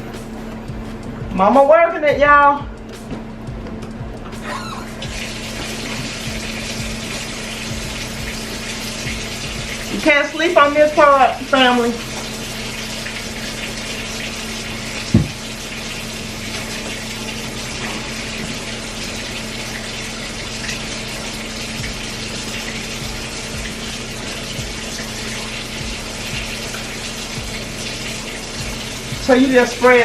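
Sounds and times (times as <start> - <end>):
steady low hum: 0.0 - 30.0
tap water running into sink: 3.0 - 30.0
knock: 15.1 - 15.4.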